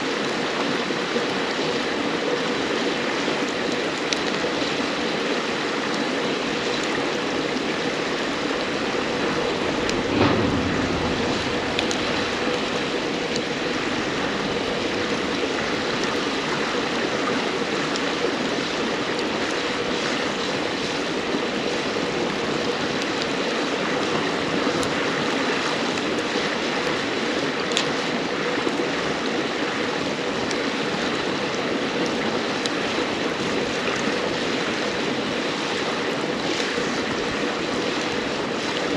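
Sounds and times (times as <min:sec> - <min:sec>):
river water babbling: 0:02.3 - 0:29.0
firewood crackling and popping: 0:05.9 - 0:25.0, 0:27.5 - 0:28.0
dull thump: 0:08.5 - 0:16.2.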